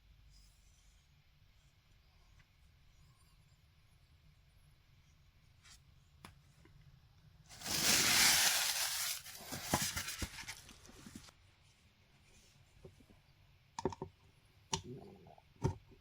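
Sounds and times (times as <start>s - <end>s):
packaging ripping: 7.5s - 10.6s
packaging crinkling: 7.5s - 10.9s.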